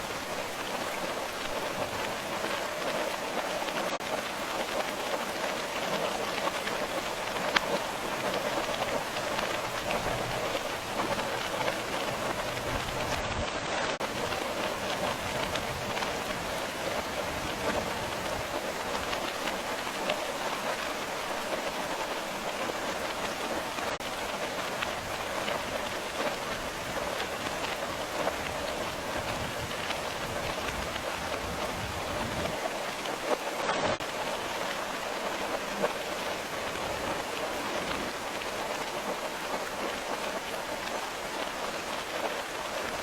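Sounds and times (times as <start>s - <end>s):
rain pattering on a surface: 0.0s - 43.0s.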